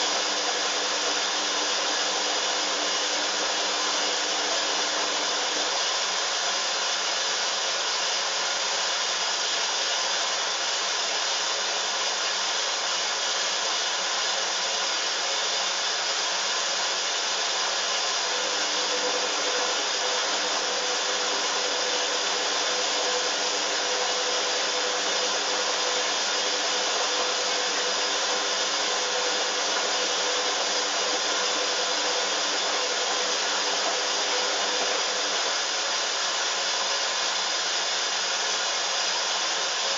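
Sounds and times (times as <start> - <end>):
washing machine spinning: 0.0 - 7.6, 18.2 - 37.4.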